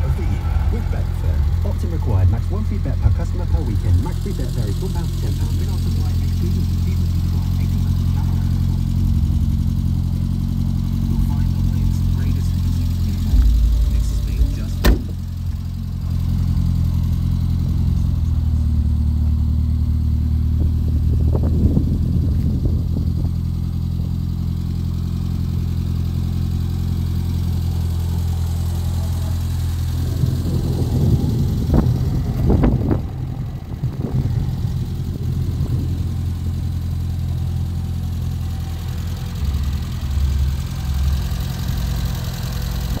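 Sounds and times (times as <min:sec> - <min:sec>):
car engine idling: 0:00.0 - 0:43.0
engine knocks and clatter: 0:00.0 - 0:43.0.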